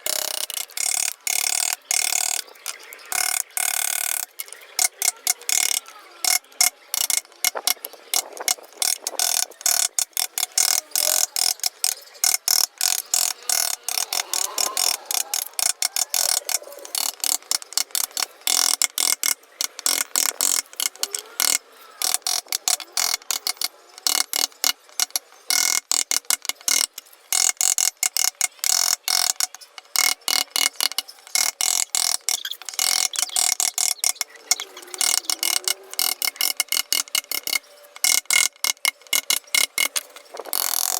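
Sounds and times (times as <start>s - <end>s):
chisel cutting wood: 0.0s - 40.9s.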